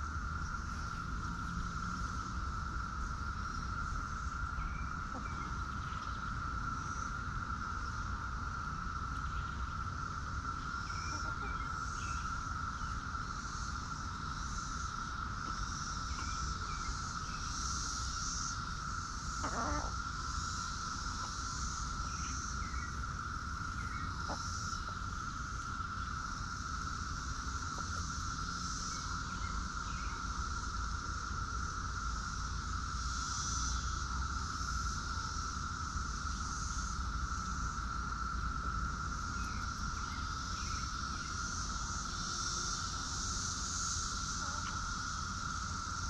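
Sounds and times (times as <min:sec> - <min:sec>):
insect drone: 0:00.0 - 0:46.0
pulsing insect buzz: 0:00.0 - 0:46.0.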